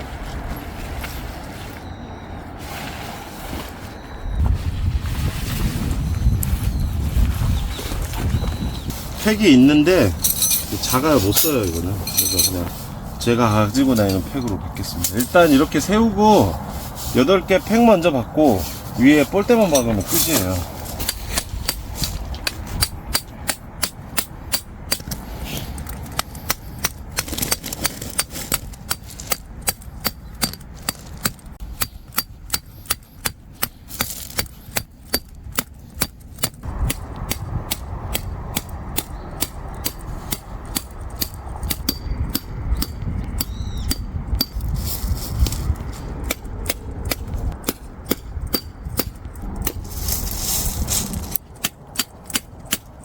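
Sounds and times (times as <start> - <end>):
hammer striking metal tent pegs: 26.0 - 44.7.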